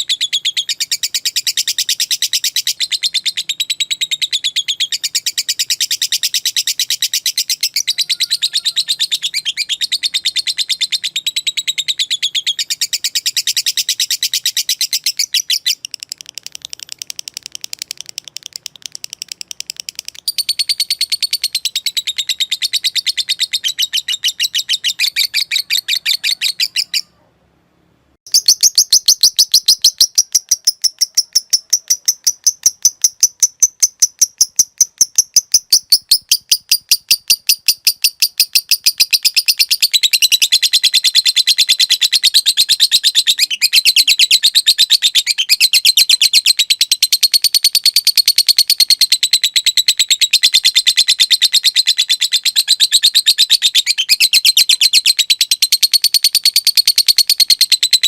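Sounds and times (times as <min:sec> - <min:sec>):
lovebird chattering trill: 0:00.0 - 0:27.1, 0:28.3 - 0:58.0.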